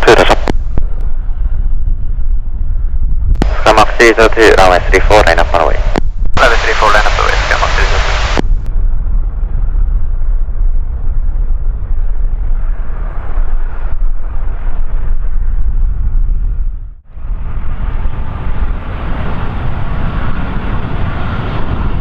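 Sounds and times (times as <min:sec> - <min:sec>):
wind buffeting microphone: 0:07.4 - 0:22.0.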